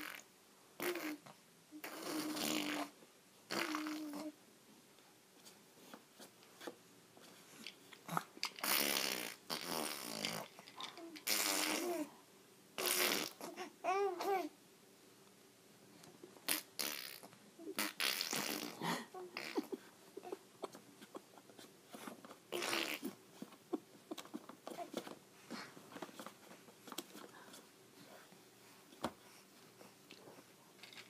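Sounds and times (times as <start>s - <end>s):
baby blowing raspberries: 0.8s - 4.3s, 8.2s - 12.1s, 12.8s - 13.7s, 16.4s - 19.8s, 22.5s - 23.2s.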